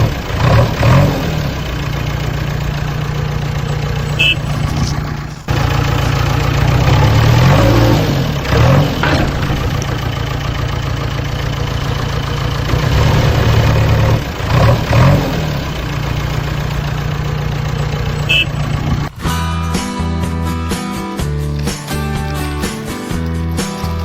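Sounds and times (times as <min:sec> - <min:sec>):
engine running and revving: 0:00.0 - 0:24.0.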